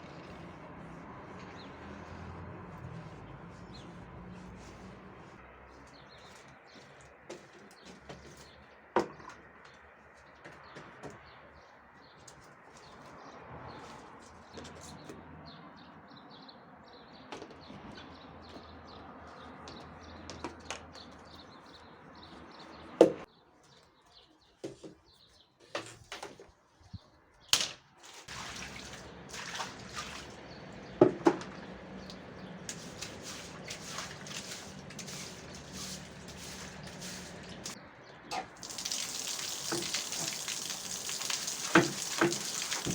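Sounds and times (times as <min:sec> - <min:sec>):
scrubbing: 0:00.0 - 0:07.0, 0:32.6 - 0:37.8, 0:38.6 - 0:42.9
water running: 0:28.3 - 0:30.4, 0:32.8 - 0:37.8, 0:38.6 - 0:42.9
birds chirping: 0:29.2 - 0:42.9.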